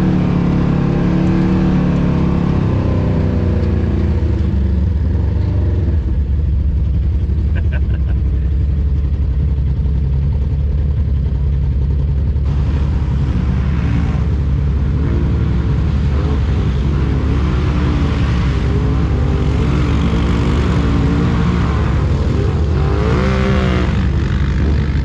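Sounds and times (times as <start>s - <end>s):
atv engine running: 0.0s - 25.0s.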